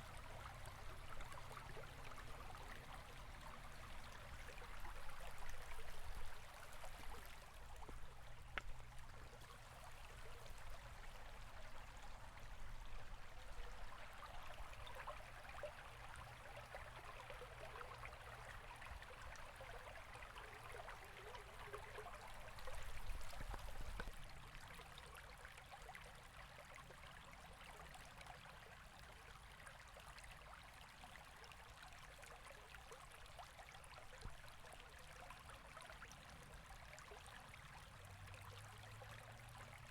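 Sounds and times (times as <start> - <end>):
river water flowing over stones: 0.0 - 25.4.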